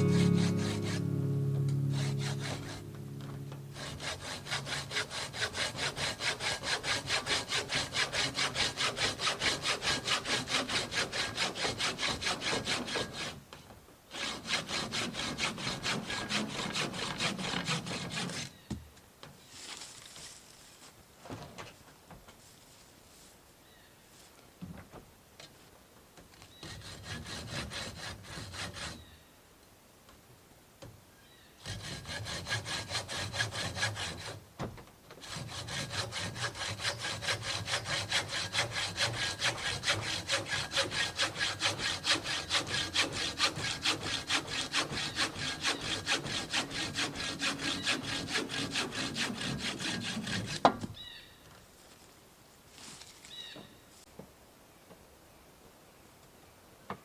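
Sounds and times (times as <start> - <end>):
hand saw cutting wood: 0.0 - 13.4, 14.1 - 18.6, 26.6 - 29.1, 31.6 - 34.5, 35.1 - 51.0.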